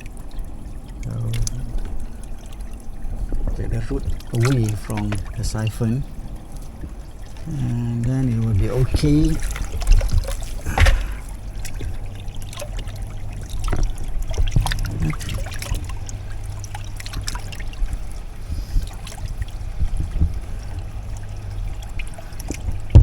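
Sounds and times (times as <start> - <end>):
steady low hum: 0.0 - 23.0
water trickling: 0.0 - 23.0
handling clicks and knocks: 8.9 - 11.4.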